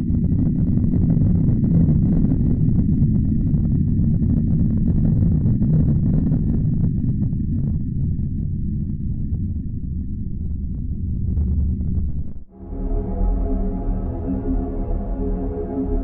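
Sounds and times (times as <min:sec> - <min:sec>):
dense low rumble: 0:12.6 - 0:16.0
faint steady high tone: 0:12.6 - 0:16.0.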